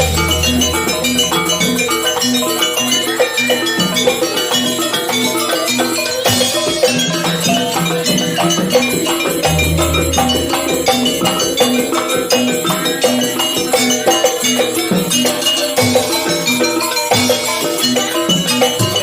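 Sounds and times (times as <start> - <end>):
percussion rhythm: 0.0 - 19.0
pitched metallic notes: 0.0 - 19.0.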